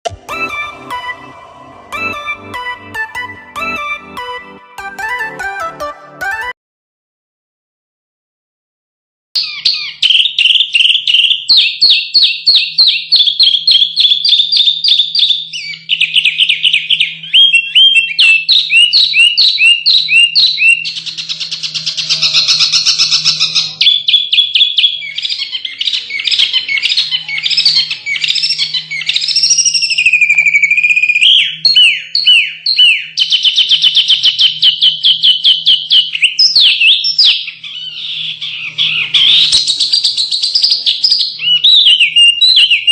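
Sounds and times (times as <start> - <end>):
small songbirds chattering song: 9.4 - 42.9.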